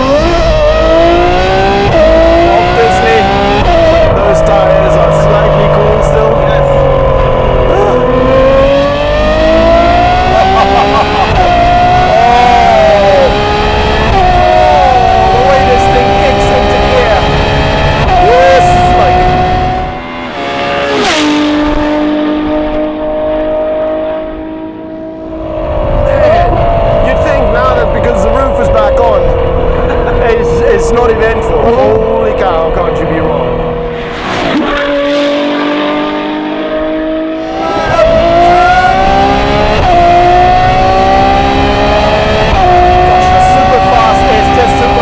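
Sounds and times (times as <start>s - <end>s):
exhaust crack: 0.0s - 23.1s
car engine accelerating hard: 0.0s - 45.0s.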